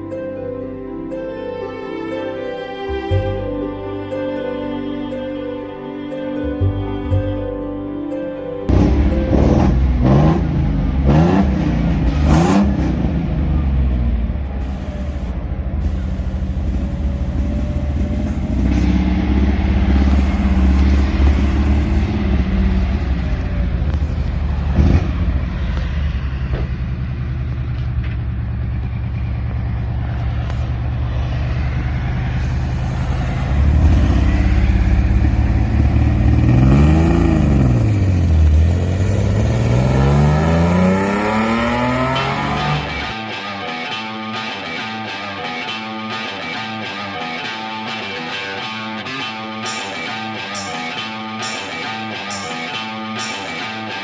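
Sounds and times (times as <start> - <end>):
car exhaust revving: 8.7 - 43.2.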